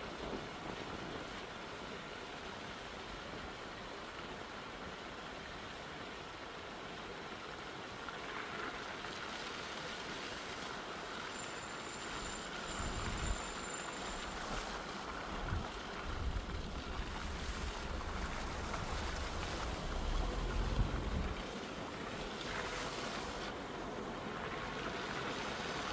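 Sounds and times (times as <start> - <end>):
rush of air noise: 14.2 - 23.6
wind buffeting microphone: 15.3 - 21.5.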